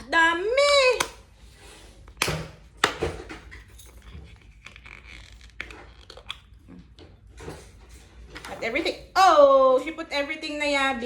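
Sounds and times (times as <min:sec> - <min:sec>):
crinkling and rustling materials: 0:01.9 - 0:08.9.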